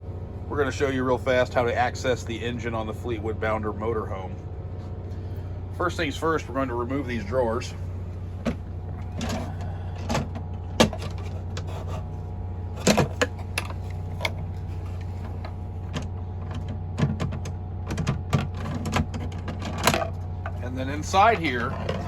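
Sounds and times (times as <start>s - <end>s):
steady low hum: 0.0s - 22.0s
drawers knocking and scraping: 8.4s - 12.1s, 12.7s - 20.6s, 21.2s - 22.0s.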